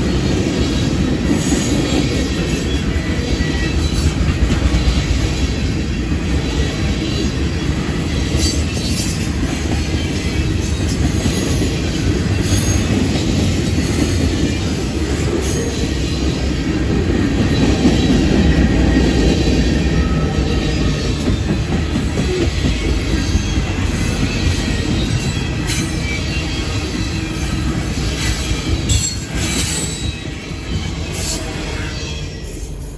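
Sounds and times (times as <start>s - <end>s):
freight train rumbling past: 0.0s - 32.9s
train wheels squealing: 0.0s - 32.9s.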